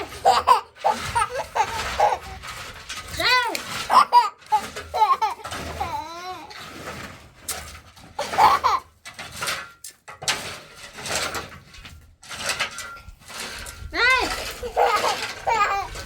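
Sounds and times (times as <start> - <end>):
young child babbling and laughing: 0.0 - 2.4, 3.2 - 6.6, 8.2 - 8.9, 13.9 - 16.0
rustling: 0.0 - 16.0.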